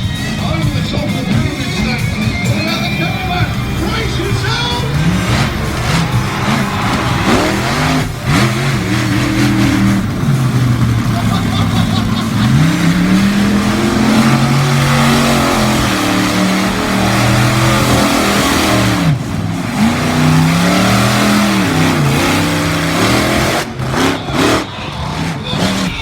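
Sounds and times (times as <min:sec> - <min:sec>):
truck engine revving hard: 0:00.0 - 0:26.0.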